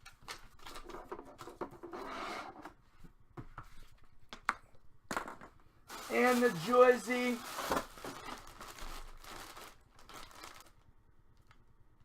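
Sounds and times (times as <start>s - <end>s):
packaging rustling: 5.9s - 10.8s.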